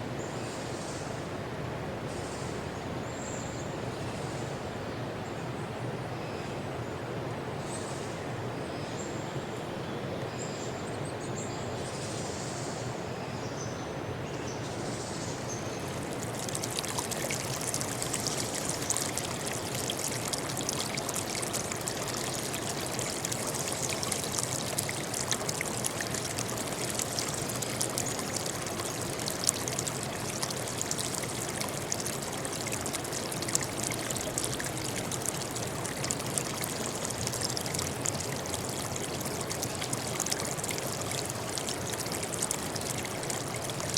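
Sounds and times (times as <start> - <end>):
stream water rushing: 15.6 - 43.9.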